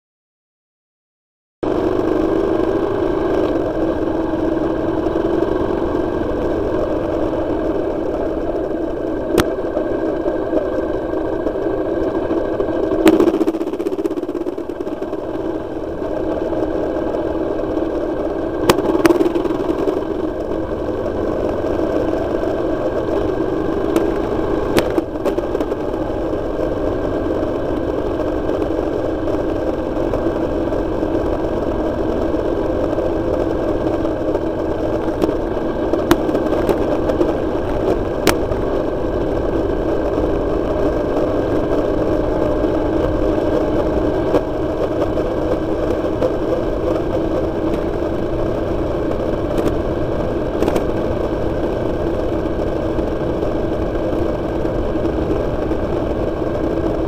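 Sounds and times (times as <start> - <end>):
motorcycle engine running: 1.6 - 57.0.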